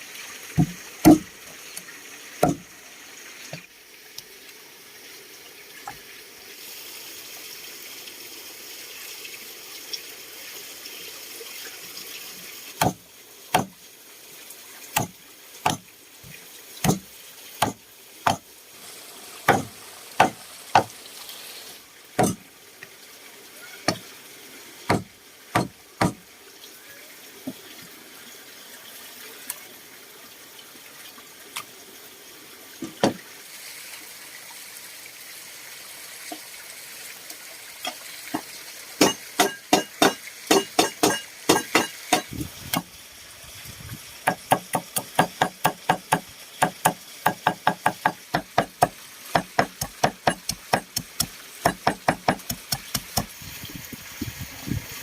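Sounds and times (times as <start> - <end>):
steady hiss: 12.3 - 26.2
knife chopping on cutting board: 16.8 - 17.0, 19.5 - 20.9, 24.9 - 26.2.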